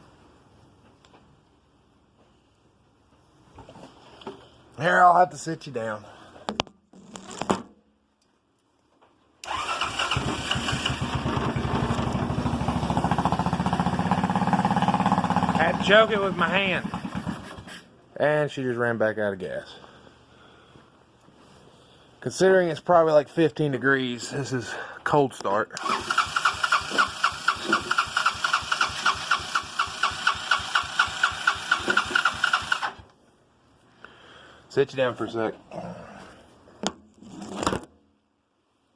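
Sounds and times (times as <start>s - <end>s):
small engine starting and running: 9.4s - 17.8s, 25.8s - 33.1s.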